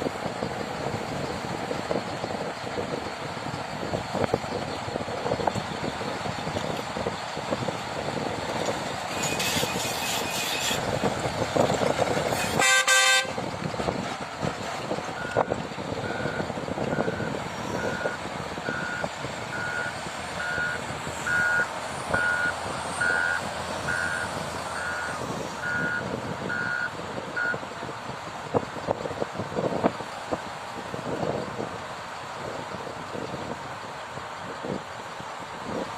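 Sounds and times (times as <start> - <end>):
heavy vehicle engine running: 0.0 - 35.9
vehicle horn blast: 12.3 - 13.4
reversing alarm beeping: 15.2 - 27.6.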